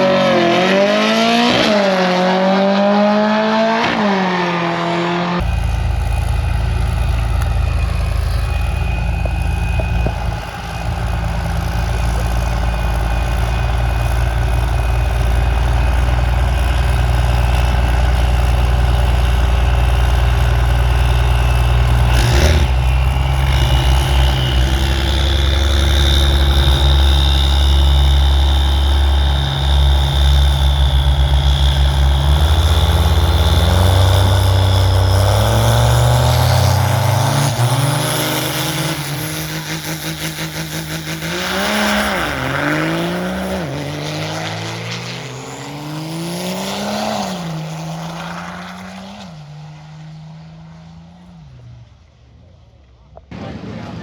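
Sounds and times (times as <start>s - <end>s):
high whine: 0.0s - 49.5s
car engine idling and revving: 0.0s - 54.0s.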